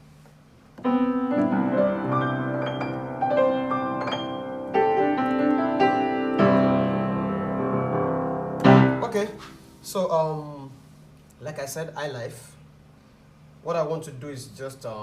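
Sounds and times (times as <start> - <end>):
piano playing chords: 0.8 - 9.4.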